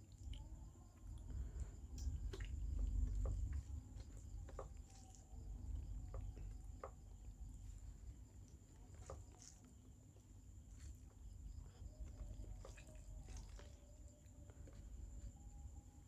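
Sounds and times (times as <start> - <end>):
chewing and mouth clicks: 0.0 - 7.8, 8.4 - 15.4
faint high-pitched whine: 0.0 - 16.0.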